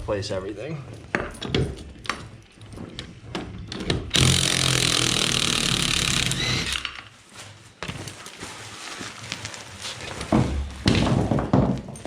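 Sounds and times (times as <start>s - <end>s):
power tool spinning lug nuts: 4.1s - 7.0s.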